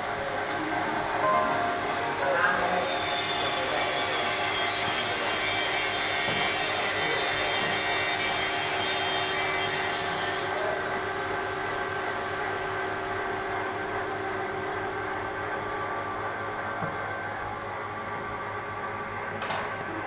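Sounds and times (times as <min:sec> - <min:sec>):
steady machine tones: 0:00.0 - 0:06.2
high machine hiss: 0:00.0 - 0:09.7.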